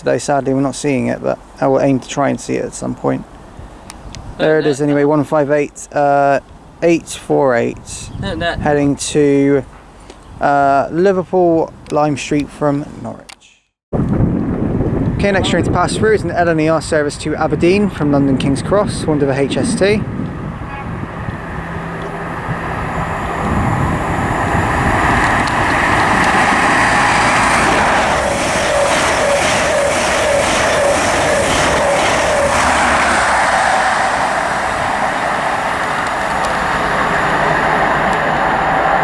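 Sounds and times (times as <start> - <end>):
diesel train passing at speed: 16.6 - 39.0
regular clicks of coach wheels: 34.8 - 39.0.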